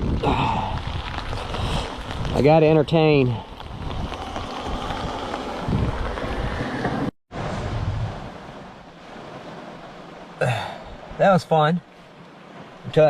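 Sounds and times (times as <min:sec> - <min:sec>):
storm wind buffeting microphone: 0:00.0 - 0:09.7
blowing rain: 0:00.0 - 0:13.0.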